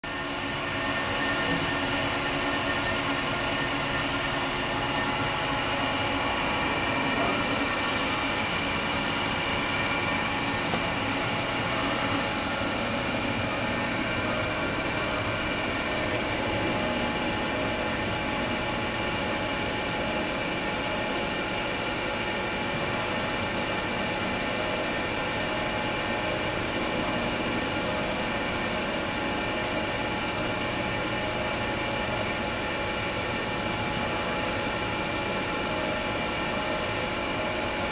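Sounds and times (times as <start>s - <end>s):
lathe machine hum: 0.0s - 37.9s
spindle drive whining: 0.1s - 20.6s.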